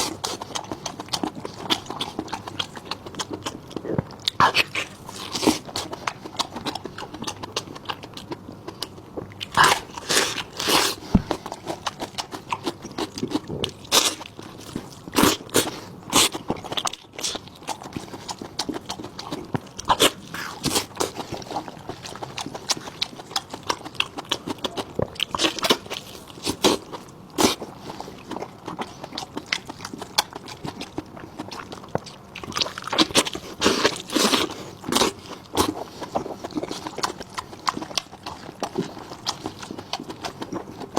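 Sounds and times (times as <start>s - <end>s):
close chewing and crunching: 0.0s - 40.9s.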